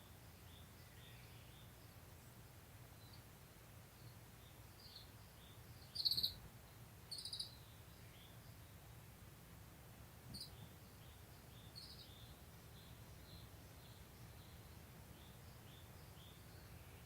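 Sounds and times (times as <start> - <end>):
faint distant chirping: 0.0 - 9.0, 10.2 - 17.0
buzzy high bird calls: 4.9 - 6.4, 7.1 - 8.4.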